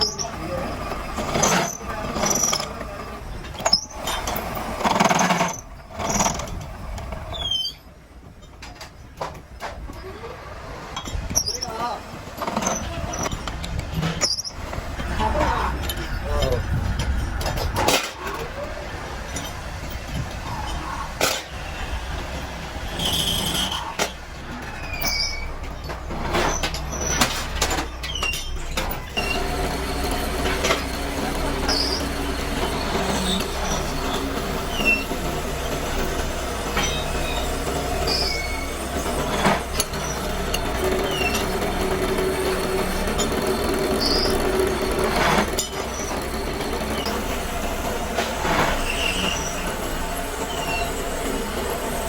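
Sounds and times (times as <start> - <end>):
grinding noise: 0.0 - 7.5, 22.1 - 52.0
machinery humming: 0.0 - 8.3, 25.4 - 52.0
high squeaks or chirps: 7.3 - 7.9, 14.2 - 14.6, 24.7 - 27.2, 27.9 - 29.8, 31.7 - 35.8, 36.8 - 41.7, 43.9 - 44.7, 48.7 - 49.8, 50.4 - 51.2
steady whine: 28.8 - 52.0.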